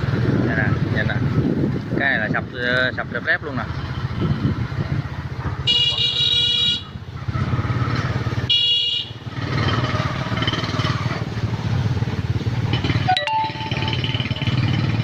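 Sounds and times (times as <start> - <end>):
motorcycle engine running: 6.8 - 15.0
horn beeps: 13.0 - 14.4.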